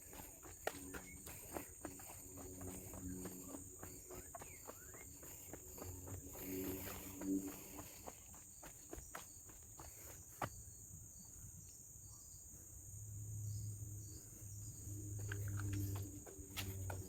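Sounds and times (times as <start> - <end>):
footsteps on trail: 0.0 - 10.6, 14.9 - 17.0
insect chorus drone: 0.0 - 17.0.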